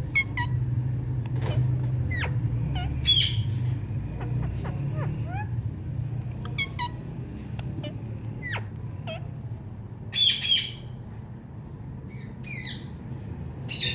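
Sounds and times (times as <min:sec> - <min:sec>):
parakeet harsh squawks: 0:00.0 - 0:00.6, 0:01.5 - 0:05.6, 0:06.4 - 0:09.4, 0:10.1 - 0:10.9
parakeet chirping: 0:00.0 - 0:00.7, 0:01.5 - 0:09.4, 0:10.1 - 0:11.0.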